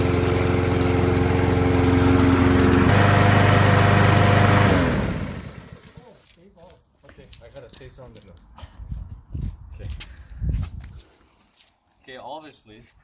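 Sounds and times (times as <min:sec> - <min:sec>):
lawn mower engine running: 0:00.0 - 0:06.2.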